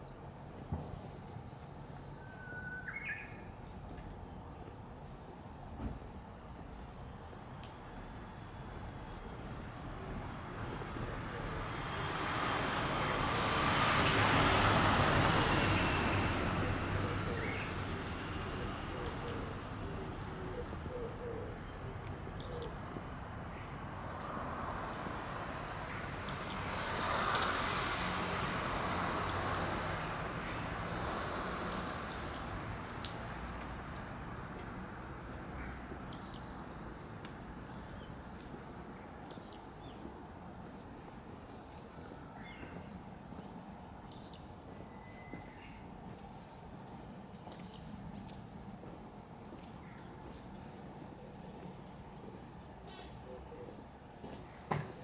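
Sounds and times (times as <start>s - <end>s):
cars passing by: 8.2s - 55.0s.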